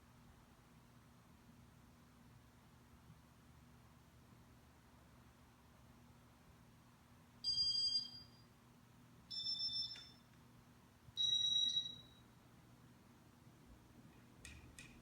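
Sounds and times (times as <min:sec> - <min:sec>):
short electronic beeps: 0:09.3 - 0:10.2, 0:11.2 - 0:12.2.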